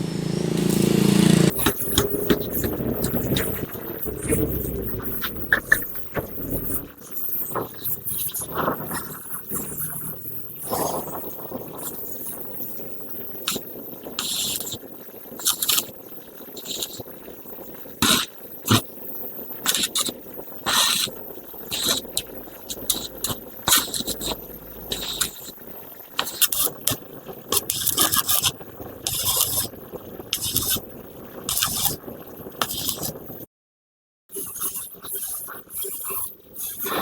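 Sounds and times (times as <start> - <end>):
scraping on metal parts: 1.6 - 9.0, 20.7 - 25.5, 29.1 - 29.7, 32.6 - 33.2.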